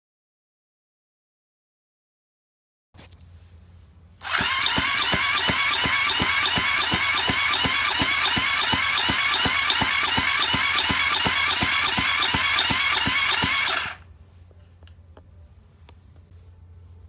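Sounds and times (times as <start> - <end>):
engine cranking on electric starter: 4.2 - 14.0.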